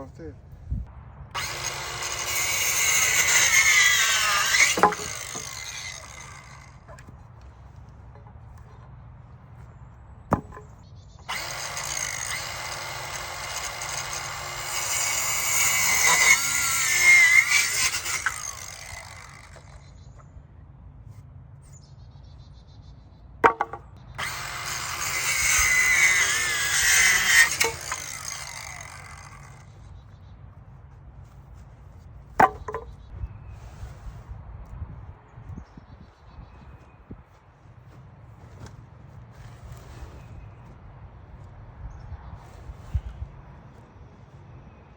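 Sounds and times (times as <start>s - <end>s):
circular saw cutting wood: 1.4s - 7.2s, 11.3s - 19.9s, 23.4s - 29.9s.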